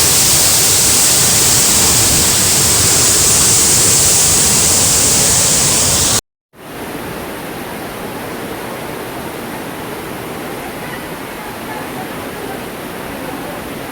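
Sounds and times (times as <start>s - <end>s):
floodwater rushing: 0.0s - 6.2s.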